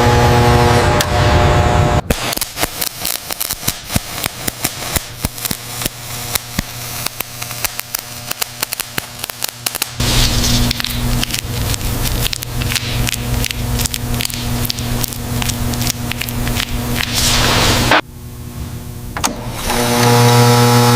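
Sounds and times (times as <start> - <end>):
loud machine sound: 0.0 - 18.1
sharp crackling clicks: 2.1 - 10.0, 10.6 - 17.2.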